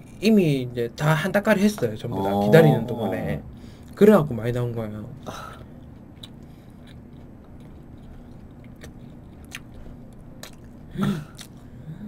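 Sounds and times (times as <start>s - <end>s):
chewing crispy toast: 5.4s - 11.7s.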